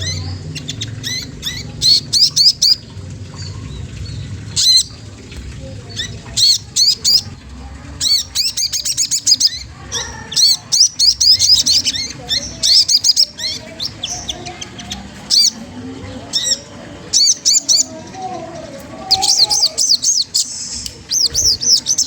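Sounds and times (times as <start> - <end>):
songbird chirping and trilling: 0.0 - 22.0.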